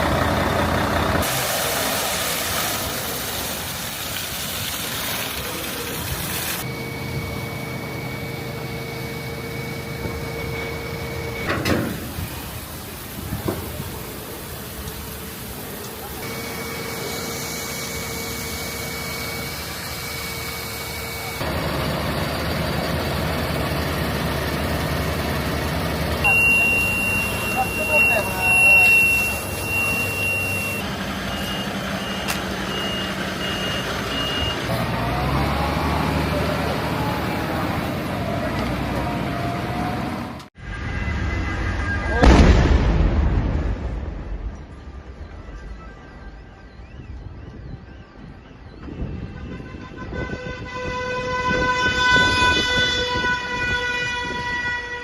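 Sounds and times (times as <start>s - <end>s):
diesel engine running: 0.0s - 4.1s, 5.3s - 40.6s
traffic rumble: 0.0s - 55.0s
reversing alarm beeping: 6.6s - 12.0s, 16.2s - 21.6s, 22.2s - 35.6s
continuous high-pitched tone: 6.6s - 34.7s, 44.2s - 50.3s
siren yelping: 26.2s - 30.8s
vehicle air horn blast: 26.2s - 30.8s, 40.6s - 42.4s, 49.2s - 55.0s.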